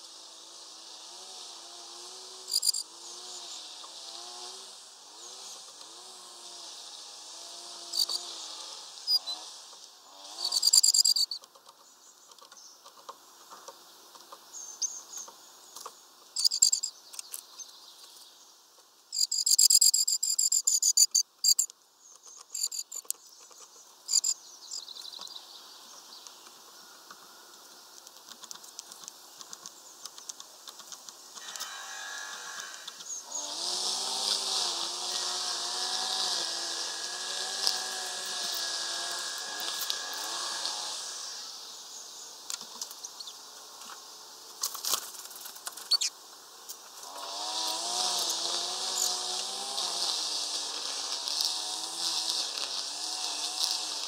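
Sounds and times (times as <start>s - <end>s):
small birds calling: 7.9s - 9.5s, 10.1s - 18.6s, 19.2s - 43.4s, 45.7s - 46.2s
steady high hiss: 13.2s - 54.0s.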